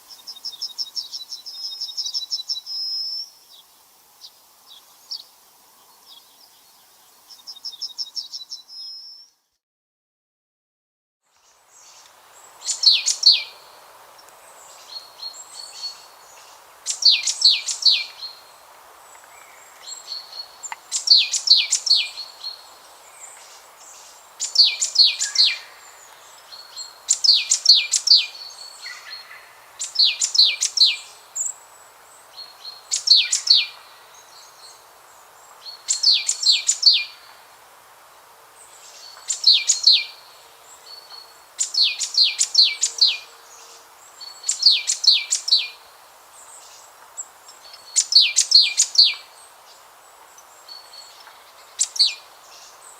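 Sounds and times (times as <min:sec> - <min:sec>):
background hiss: 0:00.0 - 0:09.5, 0:11.3 - 0:52.9
songbird singing high-pitched phrase: 0:00.1 - 0:03.6, 0:06.0 - 0:09.5, 0:12.6 - 0:13.6, 0:14.7 - 0:18.5, 0:19.6 - 0:23.4, 0:24.4 - 0:31.6, 0:32.4 - 0:34.8, 0:35.6 - 0:37.3, 0:38.9 - 0:45.9, 0:47.5 - 0:49.4, 0:50.4 - 0:52.9.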